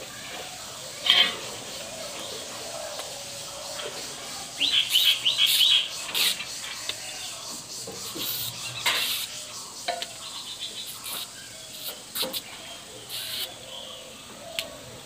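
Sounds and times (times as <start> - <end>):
bird chirping: 0.6 - 15.0.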